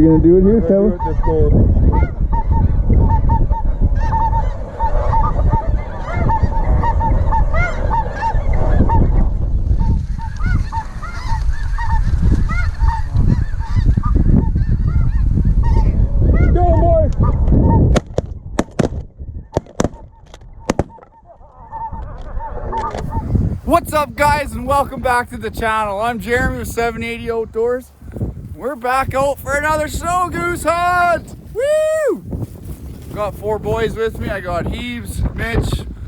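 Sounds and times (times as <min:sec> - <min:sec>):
wind rumbling on microphone: 0:00.0 - 0:36.0
geese honking: 0:00.6 - 0:09.1, 0:09.8 - 0:16.6, 0:20.8 - 0:31.4.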